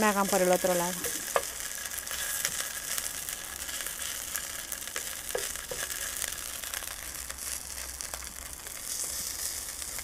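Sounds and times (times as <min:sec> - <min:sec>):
burgers sizzling in oil: 0:00.0 - 0:10.0
spatula knocking on pan: 0:00.2 - 0:01.6, 0:05.3 - 0:05.9.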